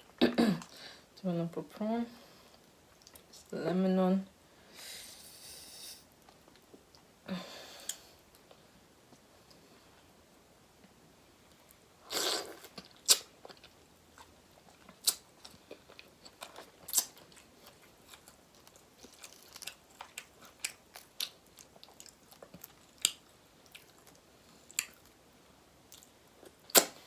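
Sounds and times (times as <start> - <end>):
person chewing: 12.0 - 25.1.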